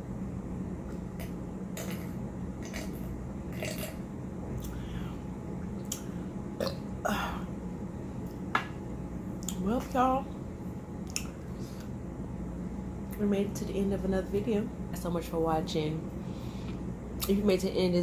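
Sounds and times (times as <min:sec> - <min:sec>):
low hum: 0:00.0 - 0:18.0
person eating mouth sounds: 0:00.9 - 0:04.0.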